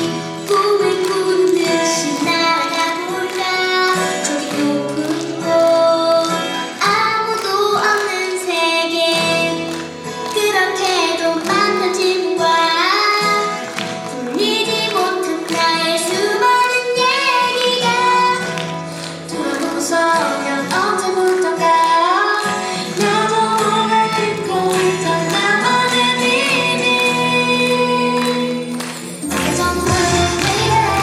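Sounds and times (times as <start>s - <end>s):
woman singing: 0.0s - 31.0s
instrumental backing: 9.3s - 31.0s
children singing: 23.0s - 31.0s.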